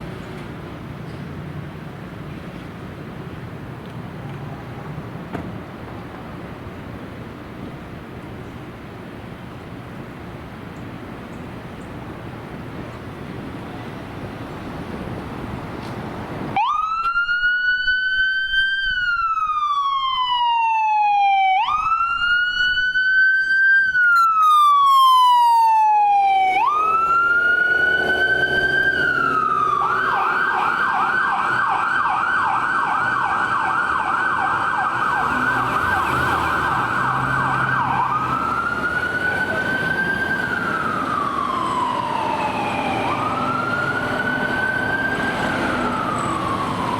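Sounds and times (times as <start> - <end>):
vehicle rumble: 0.0 - 20.2, 21.5 - 46.9
fire engine siren wailing: 16.5 - 46.9.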